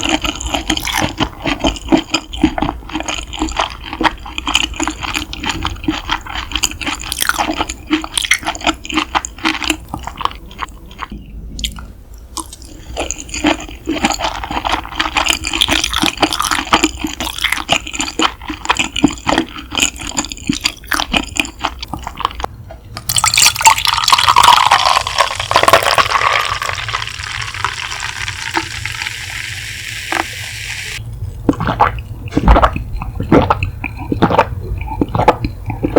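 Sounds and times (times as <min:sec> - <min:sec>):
wet chewing and mouth clicks: 0:00.0 - 0:29.0, 0:31.0 - 0:35.9
stream of liquid running: 0:25.7 - 0:31.0.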